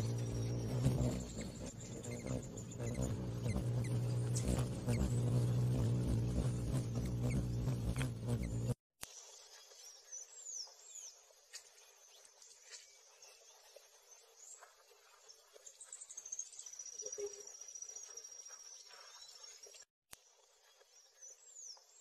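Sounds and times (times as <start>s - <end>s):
high bird trill: 0.0s - 8.8s
faint birdsong: 0.0s - 22.0s.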